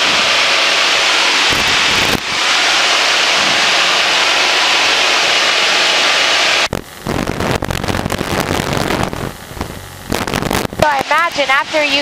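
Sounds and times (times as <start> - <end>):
low rough engine rumble: 6.6 - 12.0.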